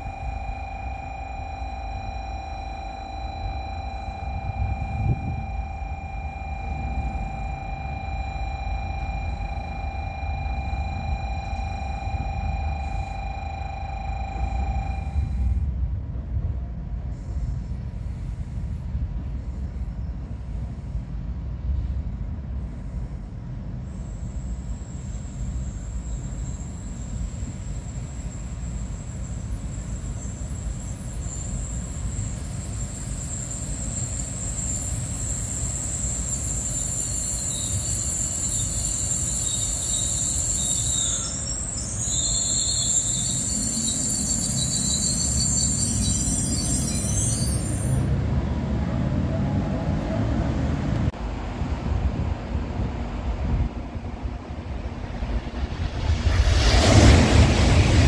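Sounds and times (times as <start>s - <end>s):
high-pitched brake squeal: 0.0s - 15.7s, 23.8s - 48.2s
wheels rumbling on rail: 0.0s - 58.0s.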